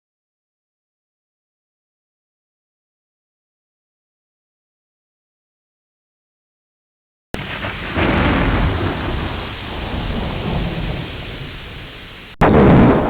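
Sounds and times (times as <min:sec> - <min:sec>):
loud steady rain rush: 0:07.4 - 0:13.0
low rumbling: 0:07.4 - 0:13.0.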